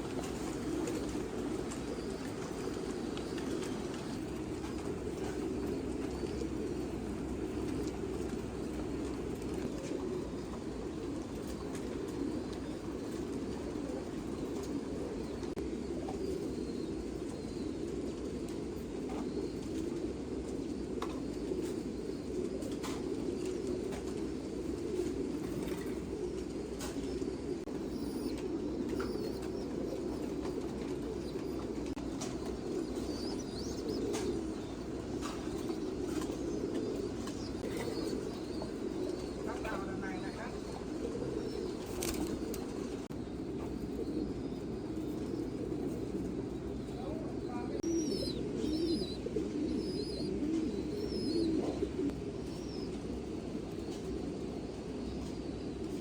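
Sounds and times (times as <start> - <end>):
pigeons cooing: 0.0 - 56.0.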